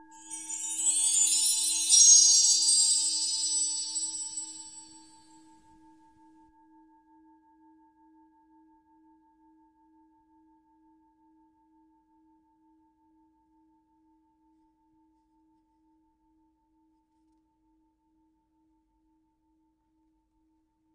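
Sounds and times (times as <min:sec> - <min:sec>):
ringing struck metal bell tone: 0:00.0 - 0:05.0.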